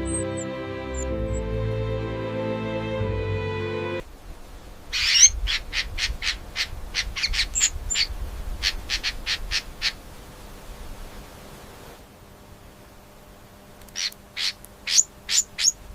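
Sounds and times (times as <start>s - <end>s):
small bird chirping: 4.9s - 10.0s, 13.8s - 15.8s.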